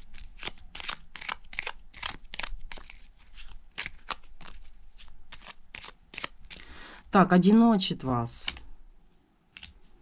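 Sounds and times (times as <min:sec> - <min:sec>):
playing cards being shuffled: 0:00.0 - 0:06.6, 0:08.3 - 0:08.7, 0:09.5 - 0:10.0.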